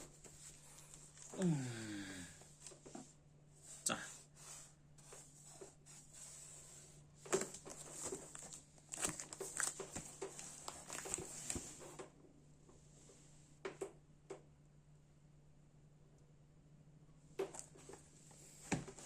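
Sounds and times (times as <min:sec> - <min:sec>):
faint steady hum: 0:00.0 - 0:19.0
packaging crinkling and rustling: 0:07.2 - 0:12.0.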